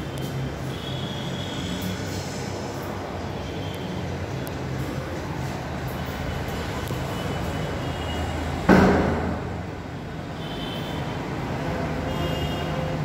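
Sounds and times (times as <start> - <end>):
loud knock: 8.7 - 9.6.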